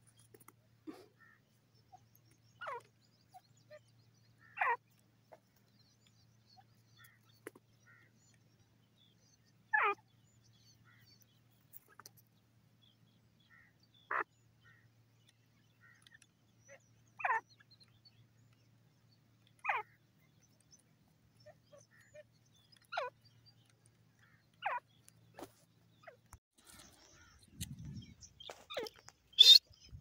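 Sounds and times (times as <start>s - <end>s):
faint chirps: 15.2s - 30.0s
francolin calling sharp notes: 29.4s - 29.6s.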